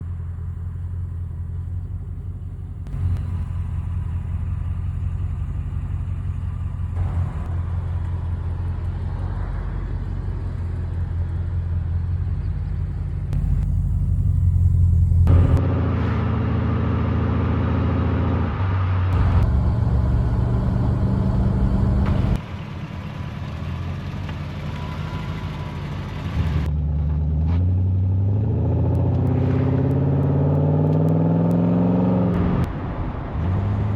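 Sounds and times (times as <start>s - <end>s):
car engine idling: 0.0s - 15.6s, 19.2s - 24.9s
car engine revving: 0.0s - 22.4s.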